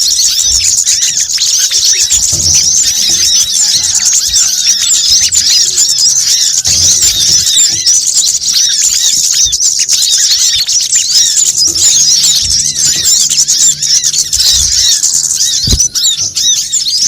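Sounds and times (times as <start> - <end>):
small birds chirping and trilling: 0.0 - 17.0.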